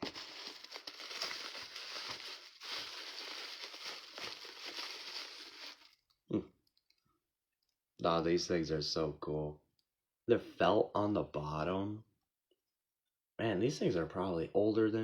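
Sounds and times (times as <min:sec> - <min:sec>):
packing material crinkling: 0:00.0 - 0:06.0.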